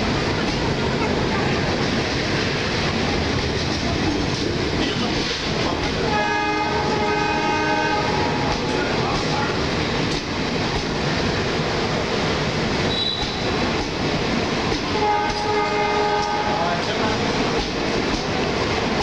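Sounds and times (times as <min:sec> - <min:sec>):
train wheels rumbling on rail: 0:00.0 - 0:19.0
train horn: 0:06.1 - 0:08.6, 0:12.9 - 0:13.5, 0:14.9 - 0:16.8.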